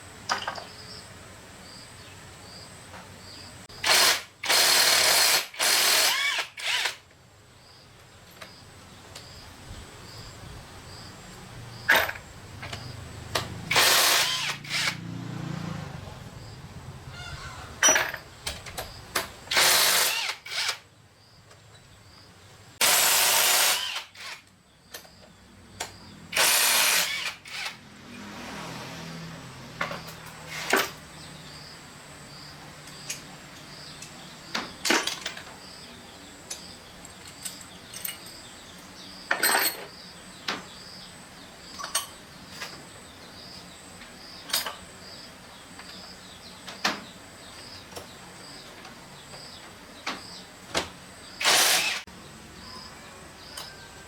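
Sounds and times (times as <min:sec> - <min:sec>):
power tool bursts: 0:03.8 - 0:07.0, 0:13.6 - 0:15.1, 0:19.5 - 0:20.8, 0:22.8 - 0:24.5, 0:26.3 - 0:27.8, 0:51.4 - 0:52.1.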